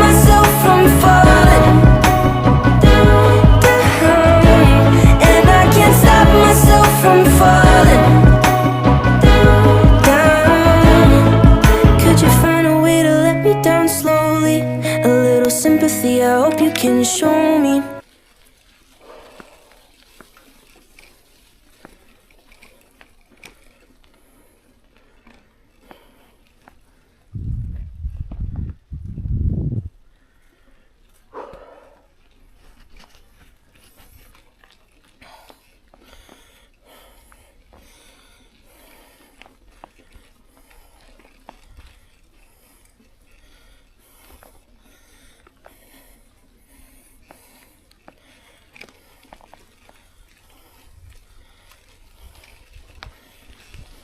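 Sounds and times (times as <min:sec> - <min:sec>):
rain dripping in forest: 0:18.0 - 0:27.1, 0:47.3 - 0:54.0
small irregular clicks: 0:18.0 - 0:27.3, 0:30.4 - 0:54.0
tyre and wind noise: 0:26.3 - 0:30.1, 0:48.6 - 0:54.0.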